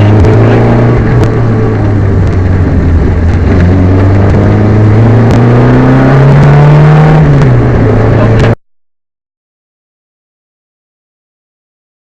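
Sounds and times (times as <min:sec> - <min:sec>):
rally car engine running hard: 0:00.0 - 0:08.6.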